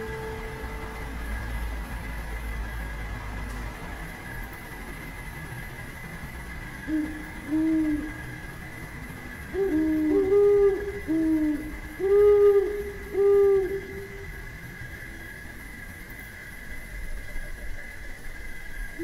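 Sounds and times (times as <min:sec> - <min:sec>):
bird hooting: 0:00.0 - 0:01.5, 0:06.8 - 0:08.4, 0:09.5 - 0:14.6
steady high tones: 0:00.0 - 0:03.1.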